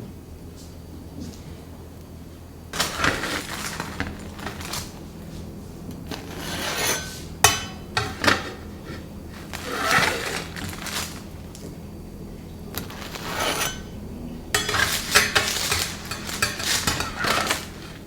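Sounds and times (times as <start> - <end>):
faint low hum: 0.0 - 18.0
scraping: 2.7 - 11.8, 12.7 - 18.0
dishes and utensils clinking: 2.8 - 5.0, 6.1 - 11.4, 12.8 - 18.0.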